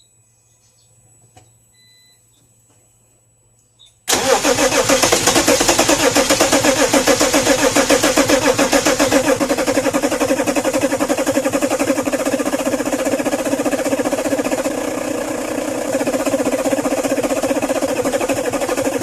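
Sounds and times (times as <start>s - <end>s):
starter motor cranking diesel engine: 4.1s - 19.0s.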